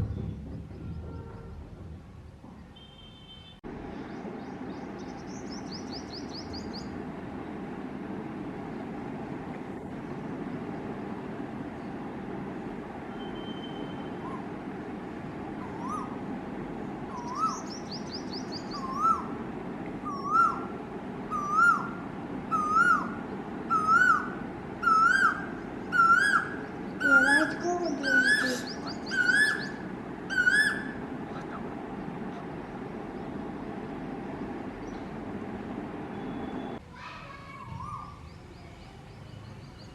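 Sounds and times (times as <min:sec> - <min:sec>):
low background rumble: 0:00.0 - 0:39.9
koel singing rising notes: 0:17.1 - 0:31.2
small bird chirping: 0:17.2 - 0:19.2, 0:25.9 - 0:30.9.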